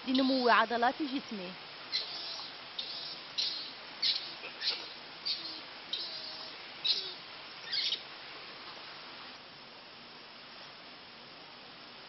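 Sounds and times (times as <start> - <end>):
small bird chirping: 1.9 - 8.0.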